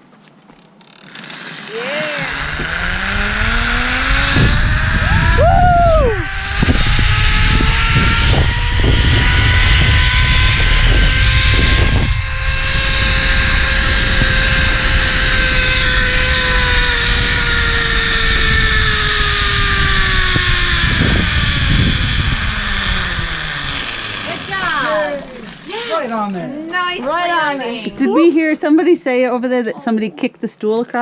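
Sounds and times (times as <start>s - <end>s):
zipline pulleys whining on cable: 0.8s - 28.5s
wind rumble on microphone: 2.2s - 24.7s.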